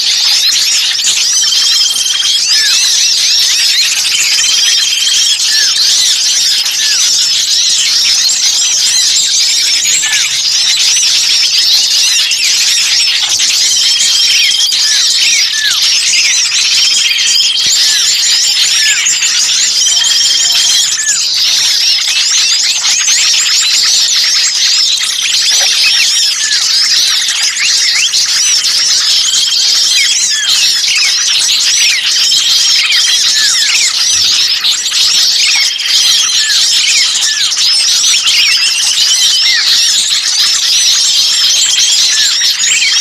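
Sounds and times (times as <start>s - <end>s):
bird trills: 0.0s - 40.6s
small birds chirping: 0.0s - 43.0s.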